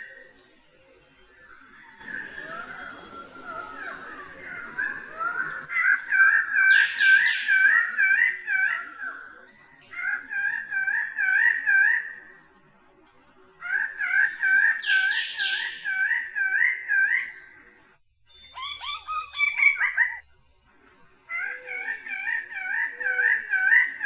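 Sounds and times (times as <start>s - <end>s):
steady high whine: 0.0s - 9.4s
busy run of bird calls: 1.3s - 12.2s
bird wavering calls: 1.9s - 9.3s, 18.3s - 20.4s, 21.3s - 24.0s.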